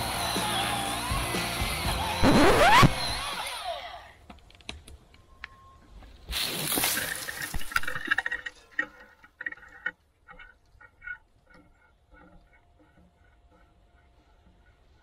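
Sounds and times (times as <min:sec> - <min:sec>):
electric chainsaw spinning down: 0:02.1 - 0:03.8.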